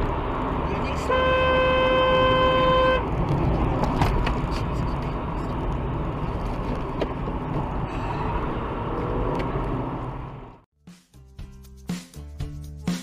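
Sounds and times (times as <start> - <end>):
traffic road and engine noise: 0.0 - 10.7
music: 10.8 - 13.0.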